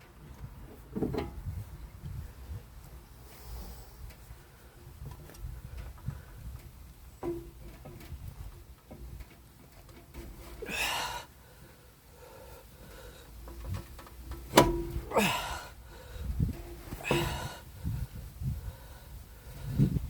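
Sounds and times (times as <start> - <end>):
man breathing out hard: 10.6 - 13.4, 15.1 - 16.4, 17.0 - 19.9.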